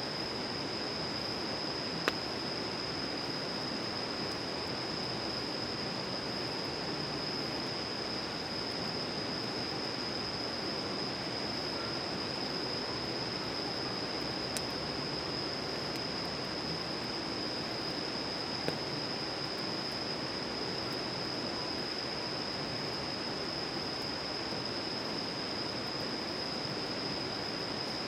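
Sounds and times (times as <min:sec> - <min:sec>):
faint click: 0:02.0 - 0:02.2.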